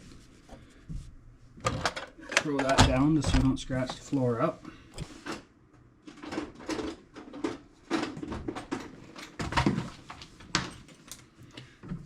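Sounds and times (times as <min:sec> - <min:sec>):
metal tool box knocks and clunks: 0:01.7 - 0:03.9.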